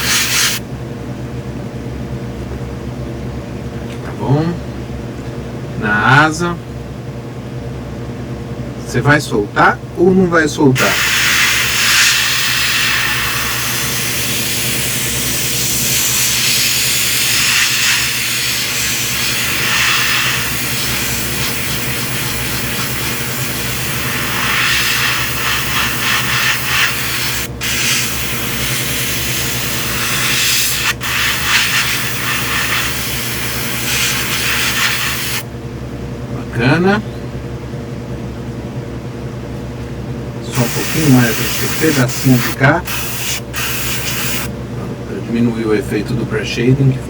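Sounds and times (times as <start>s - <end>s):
airbrush spraying hiss: 0.0s - 0.6s, 10.8s - 35.4s, 40.6s - 44.5s.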